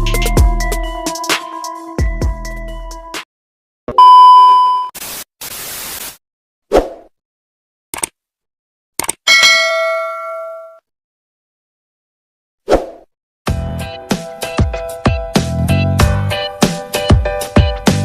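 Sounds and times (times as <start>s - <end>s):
short hiss-like burst: 5.0s - 6.2s
loud ding: 9.3s - 10.8s
ringing chime: 9.3s - 10.8s.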